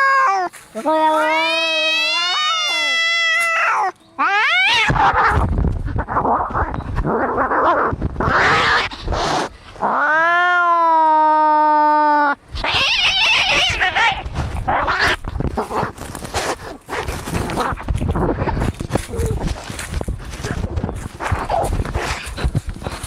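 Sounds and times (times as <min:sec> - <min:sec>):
cat yowling: 0:00.0 - 0:05.4, 0:09.8 - 0:15.2
cats screeching: 0:00.0 - 0:15.9
cats hissing and spitting: 0:04.8 - 0:10.0, 0:20.2 - 0:23.0.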